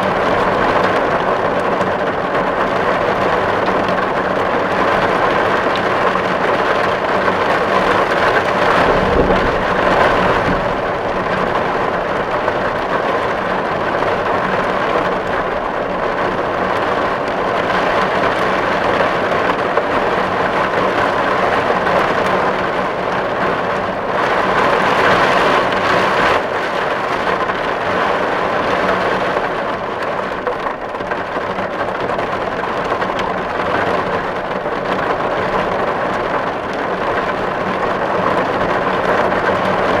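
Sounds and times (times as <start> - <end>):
rain drumming on a tin roof: 0.0 - 40.0
low rumble: 7.8 - 16.3.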